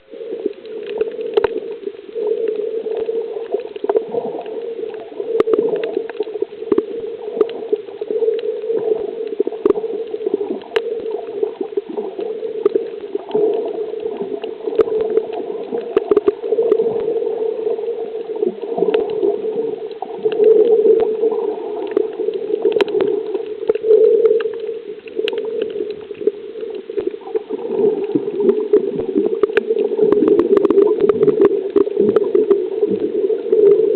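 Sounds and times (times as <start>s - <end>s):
water sloshing and gurgling: 0.0s - 33.9s.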